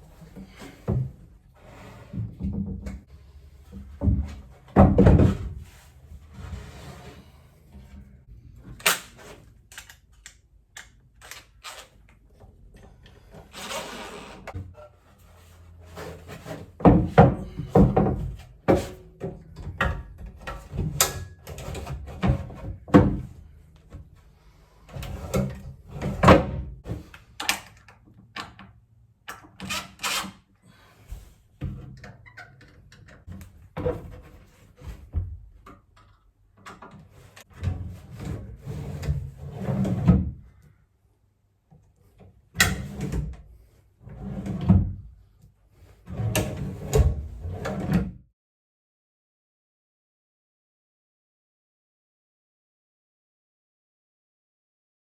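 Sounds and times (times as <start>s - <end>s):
wooden knocks and thuds: 3.9s - 5.6s, 16.8s - 18.8s.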